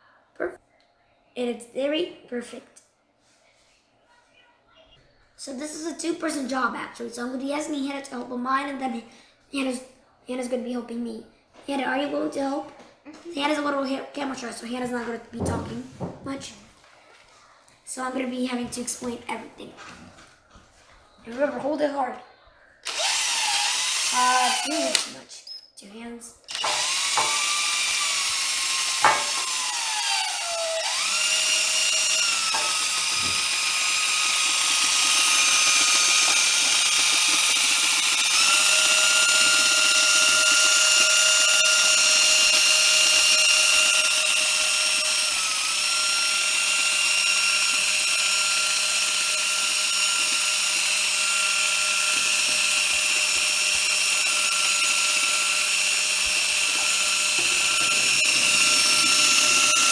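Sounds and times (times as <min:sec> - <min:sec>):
drill wire brush whine: 0:22.8 - 0:25.1, 0:26.5 - 0:59.9.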